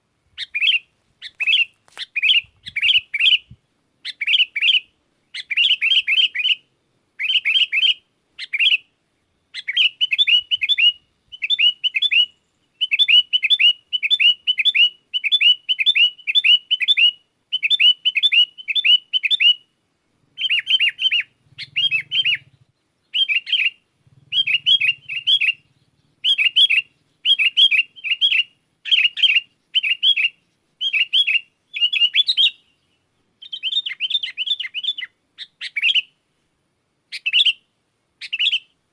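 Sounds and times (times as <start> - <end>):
bird singing bubbly chirps: 20.4 - 35.0.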